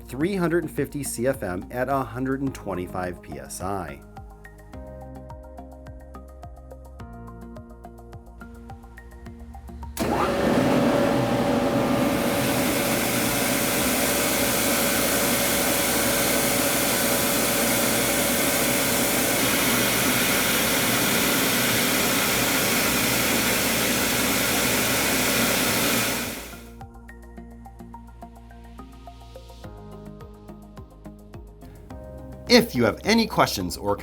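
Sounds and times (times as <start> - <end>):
air compressor running: 10.0 - 26.7.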